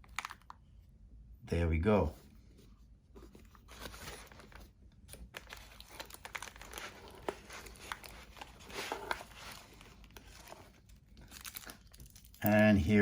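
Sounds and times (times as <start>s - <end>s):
packaging crinkling and rustling: 0.0s - 0.6s, 3.3s - 13.0s.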